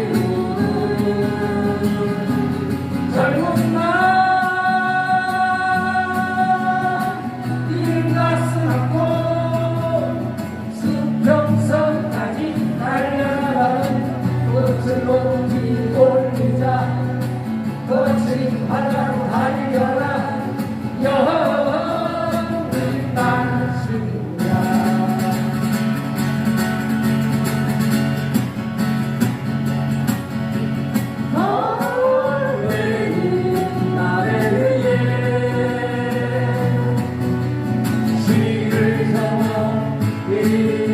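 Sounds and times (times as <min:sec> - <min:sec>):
person singing: 0:00.0 - 0:17.2, 0:31.3 - 0:37.2
strummed acoustic guitar: 0:00.0 - 0:40.9.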